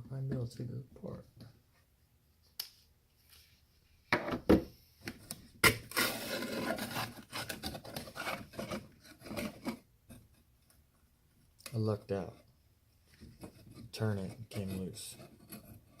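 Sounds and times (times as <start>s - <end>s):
fastener grating and scraping: 5.6s - 9.8s, 13.3s - 16.0s.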